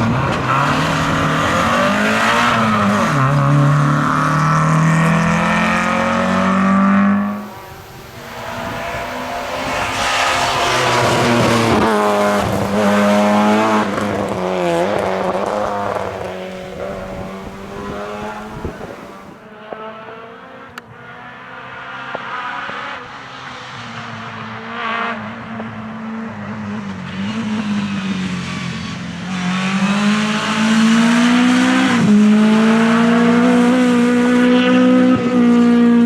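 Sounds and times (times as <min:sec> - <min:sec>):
car revving through gear changes: 0:00.0 - 0:19.9, 0:29.3 - 0:36.0
rally car engine at full throttle: 0:00.0 - 0:36.0.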